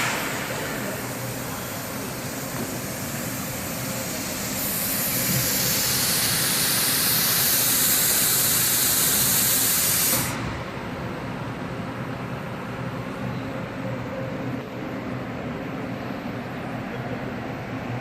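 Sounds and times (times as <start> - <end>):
plasma torch hissing: 0.0 - 10.6.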